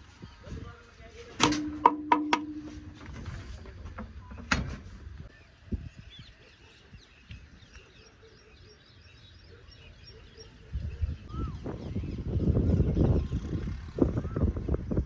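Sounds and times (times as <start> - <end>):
sharp knock: 1.4 - 3.5
dull thump: 1.4 - 5.1.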